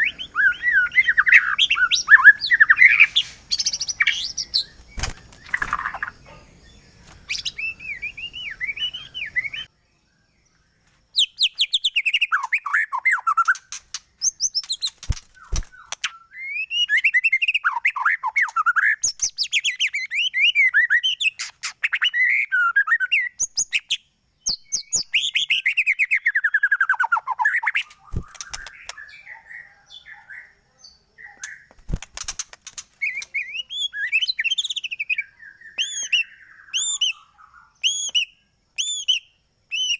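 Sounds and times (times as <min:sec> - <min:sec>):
bird singing whistled phrases: 0:00.0 - 0:06.4, 0:07.3 - 0:09.7, 0:11.2 - 0:31.7, 0:33.0 - 0:39.9
sharp clicks: 0:13.4 - 0:16.1, 0:27.8 - 0:29.0, 0:31.4 - 0:33.4.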